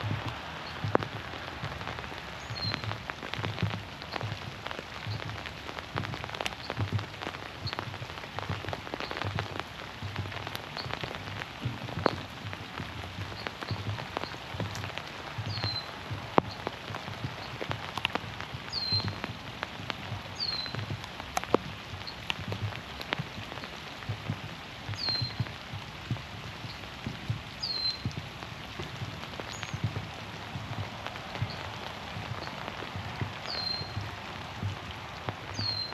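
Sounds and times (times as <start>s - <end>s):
footsteps on boardwalk: 0.0s - 35.9s
rain on trees and pond: 0.0s - 35.9s
water drips ticking: 0.0s - 35.9s
bird chirps: 15.5s - 15.9s, 18.7s - 19.1s, 20.4s - 20.8s, 25.0s - 25.4s, 27.6s - 28.0s, 33.5s - 34.0s, 35.6s - 35.9s.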